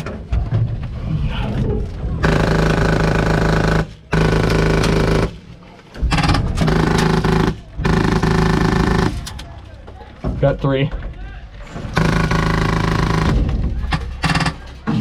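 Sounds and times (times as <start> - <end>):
airsoft machine gun firing: 2.2 - 5.4, 6.1 - 9.4, 12.0 - 15.0.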